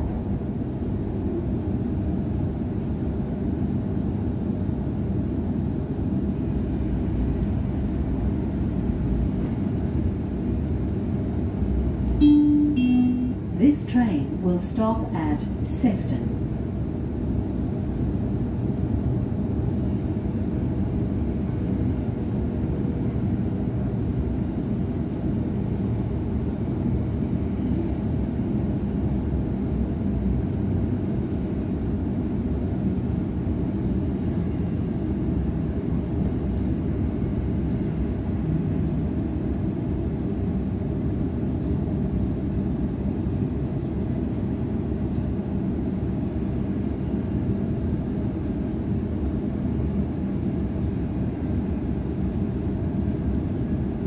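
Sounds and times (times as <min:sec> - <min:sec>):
train wheel-on-rail rumble: 0:00.0 - 0:54.0.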